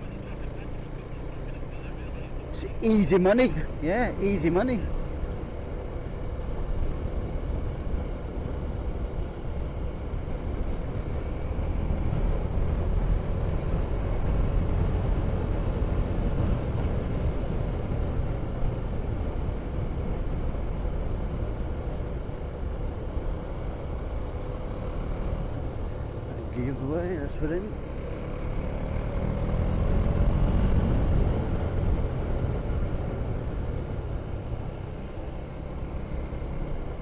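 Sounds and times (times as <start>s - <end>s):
motorcycle engine cruising: 0.0s - 37.0s
wind rushing over microphone: 5.1s - 24.3s.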